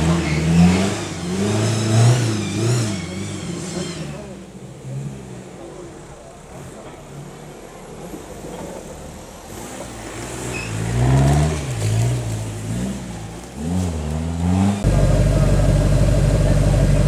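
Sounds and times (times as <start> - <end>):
vehicle engine revving: 0.0 - 8.2, 8.8 - 17.0
loud steady engine: 14.8 - 17.0.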